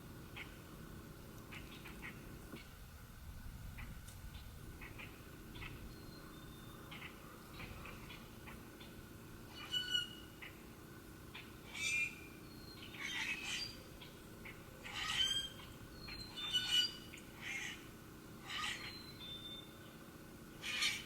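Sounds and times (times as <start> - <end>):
birds squawking: 9.5 - 10.6, 11.3 - 19.6, 20.6 - 21.0
thin whistled bird notes: 15.1 - 17.2, 18.7 - 20.0.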